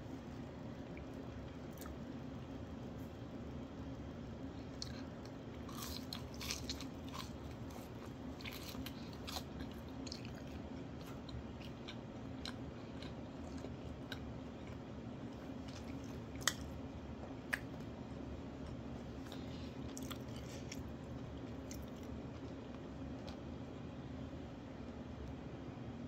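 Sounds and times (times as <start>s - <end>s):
chewing crunchy food: 0.5s - 2.6s, 4.4s - 18.0s, 18.6s - 23.5s.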